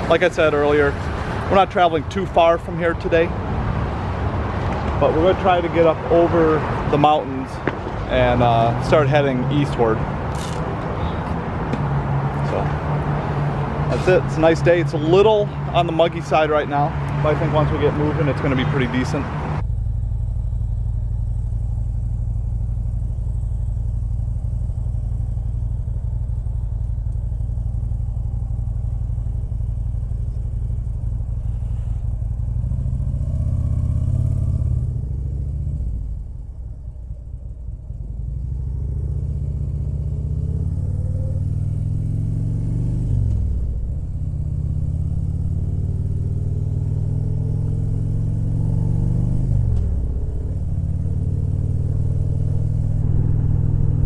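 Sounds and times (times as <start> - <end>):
motorcycle engine revving: 17.2 - 54.0.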